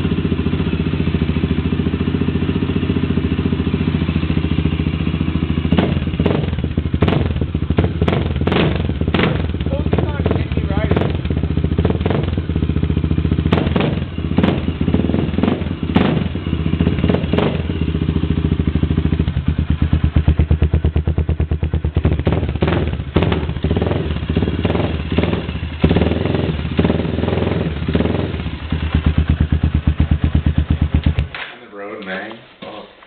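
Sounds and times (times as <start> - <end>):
motorcycle engine running loud: 0.0 - 31.4
exhaust cracks: 5.6 - 18.2, 19.0 - 32.2.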